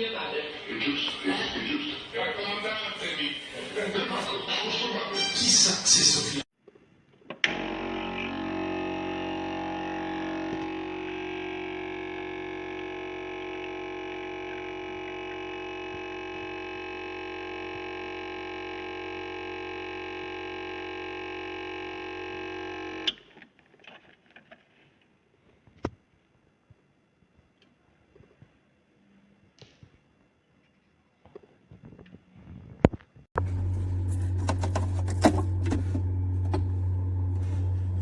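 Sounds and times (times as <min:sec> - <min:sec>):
espresso machine pump buzzing: 0:07.5 - 0:23.1.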